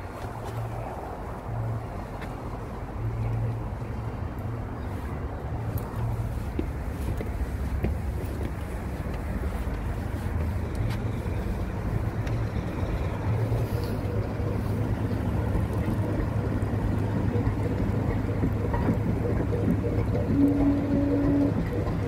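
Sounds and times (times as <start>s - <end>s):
train rumbling in motion: 0.0s - 22.0s
faint clicks: 5.7s - 22.0s.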